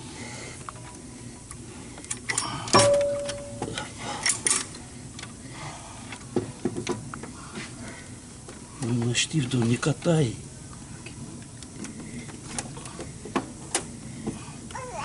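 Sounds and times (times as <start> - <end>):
metal tools clicking and knocking: 2.1 - 4.8
sharp metallic clank: 2.7 - 4.4.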